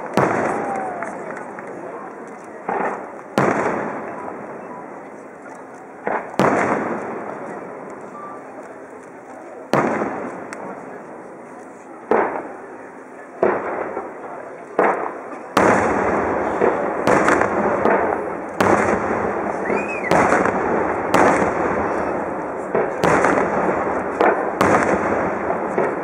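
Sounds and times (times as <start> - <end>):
firework whistle: 0.3 - 1.2, 19.5 - 20.4
firework shells bursting: 14.7 - 26.0.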